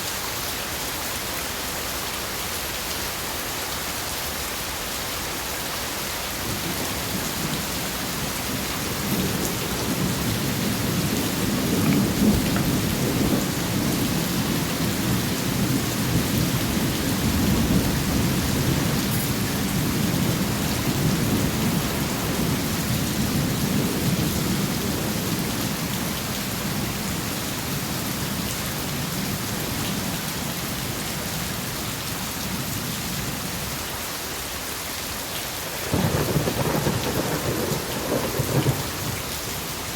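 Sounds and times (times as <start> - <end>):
steady rain falling: 0.0 - 39.9
low roll of thunder: 6.6 - 26.1, 35.8 - 39.2.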